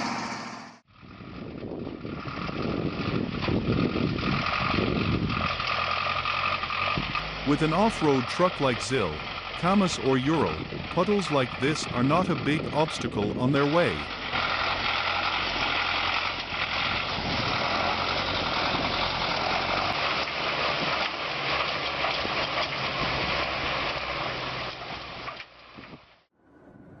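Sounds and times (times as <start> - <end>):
truck engine under load: 0.0 - 26.3.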